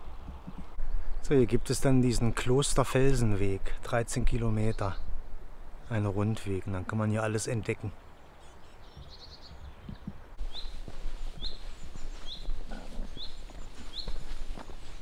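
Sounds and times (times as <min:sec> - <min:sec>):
bird chirping: 0:08.0 - 0:14.8
wind rumbling on microphone: 0:08.8 - 0:15.0.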